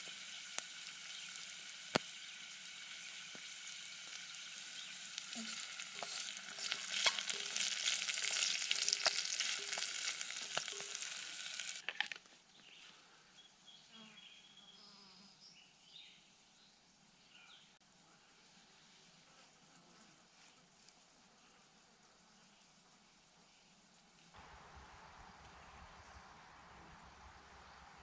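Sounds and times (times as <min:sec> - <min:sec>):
food sizzling in oil: 0:00.0 - 0:12.1
faint bird chirps: 0:12.5 - 0:17.8.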